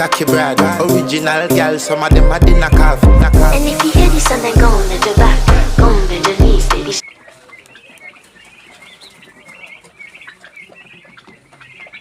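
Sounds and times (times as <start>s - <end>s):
chickens chirping and peeping: 1.6s - 12.0s.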